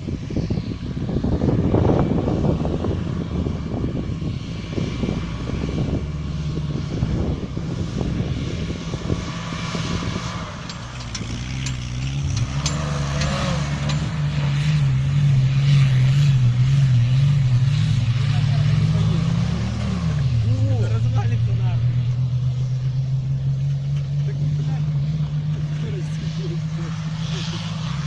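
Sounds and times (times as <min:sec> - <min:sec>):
wind buffeting microphone: 0:00.0 - 0:23.6
low engine-like hum: 0:00.0 - 0:28.0.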